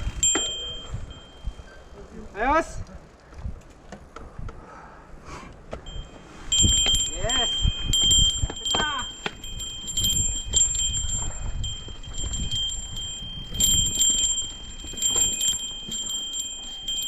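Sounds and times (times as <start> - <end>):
small metal bell jingling: 0.0 - 2.2, 5.9 - 17.0
low rumble of movement: 2.8 - 17.0.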